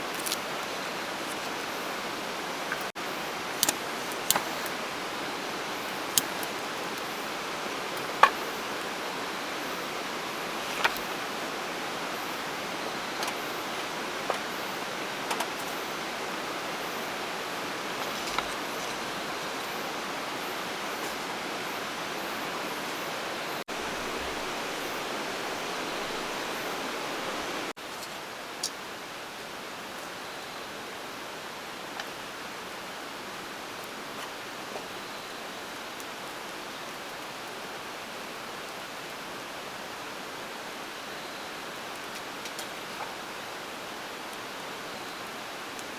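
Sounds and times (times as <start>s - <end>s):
rushing water: 0.0s - 30.0s.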